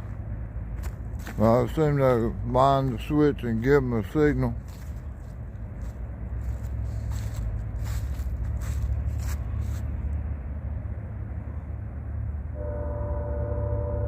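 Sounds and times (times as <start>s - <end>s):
low steady rumble: 0.0s - 14.0s
scraping and rustling: 4.6s - 10.0s
train air horn: 12.5s - 14.0s.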